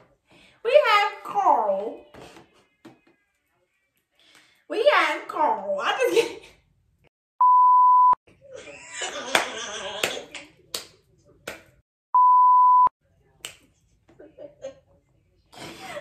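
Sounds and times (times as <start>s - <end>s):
test tone beeps: 7.4s - 8.2s, 12.2s - 12.9s.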